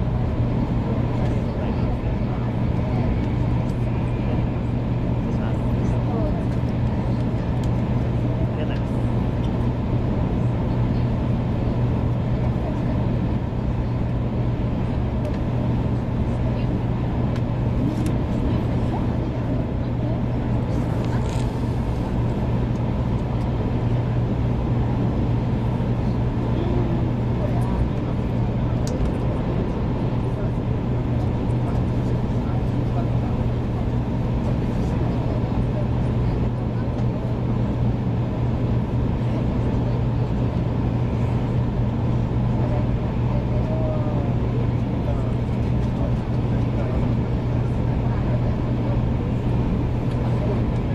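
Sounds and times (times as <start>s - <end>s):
train cabin rumble and hum: 0.0s - 50.9s.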